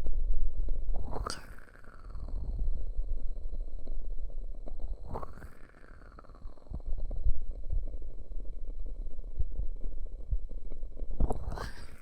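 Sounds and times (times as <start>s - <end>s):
muffled low rumbling: 6.5s - 11.5s.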